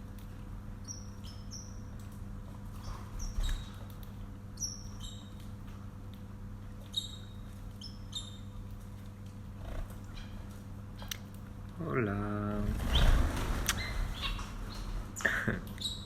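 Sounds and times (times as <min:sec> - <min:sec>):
steady low hum: 0:00.0 - 0:16.0
pet birds chirping: 0:00.8 - 0:05.5, 0:06.8 - 0:08.8, 0:09.6 - 0:11.2, 0:12.8 - 0:15.0, 0:15.7 - 0:16.0.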